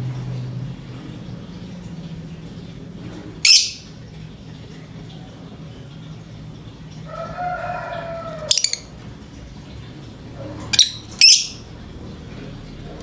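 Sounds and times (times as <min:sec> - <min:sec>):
bird shrill calls: 0:03.4 - 0:03.9, 0:08.1 - 0:08.9, 0:10.8 - 0:11.6
rooster crowing: 0:07.0 - 0:08.9.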